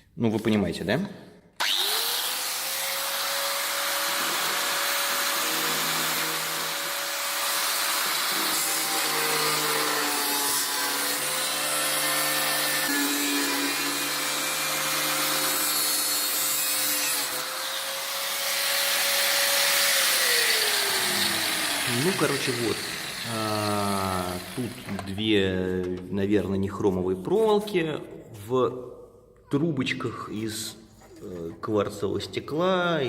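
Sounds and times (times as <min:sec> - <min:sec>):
angle grinder cutting metal: 0:01.6 - 0:25.2.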